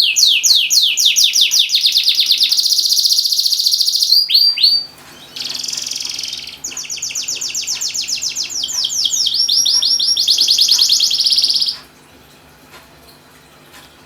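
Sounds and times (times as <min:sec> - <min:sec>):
canary singing in rapid trills: 0:00.0 - 0:11.8.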